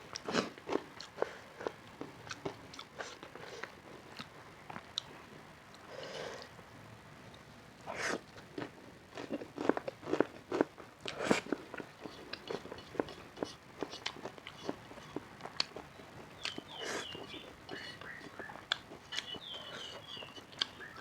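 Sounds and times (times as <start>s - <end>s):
chewing: 0.1s - 6.5s, 8.1s - 21.0s.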